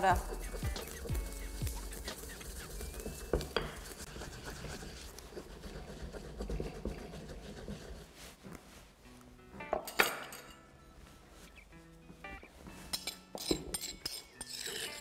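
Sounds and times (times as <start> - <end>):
pestle grinding in a mortar: 0.2 - 8.1.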